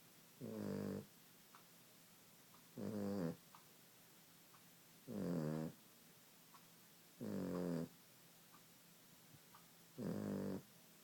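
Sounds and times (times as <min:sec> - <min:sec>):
dog snoring: 0:00.4 - 0:01.1, 0:02.8 - 0:03.4, 0:05.1 - 0:05.8, 0:07.2 - 0:08.0, 0:10.0 - 0:10.7.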